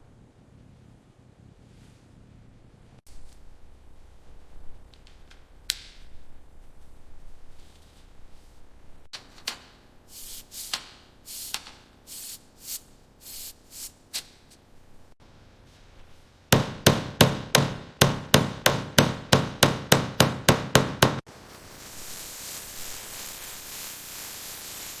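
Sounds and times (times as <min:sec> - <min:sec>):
soft rubbing strokes: 0:01.4 - 0:04.9, 0:06.1 - 0:09.1, 0:12.1 - 0:16.5
sharp hammer blows: 0:16.6 - 0:21.2.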